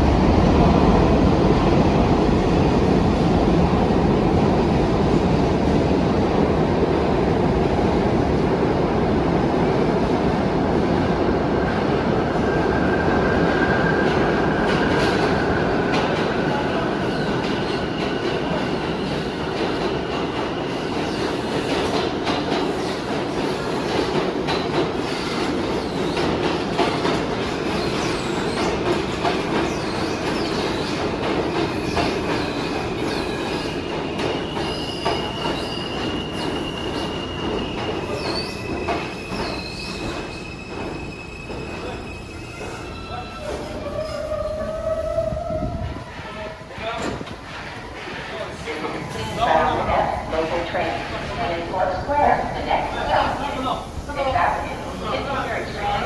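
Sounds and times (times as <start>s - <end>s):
steel wheels clattering on rails: 14.6s - 41.9s.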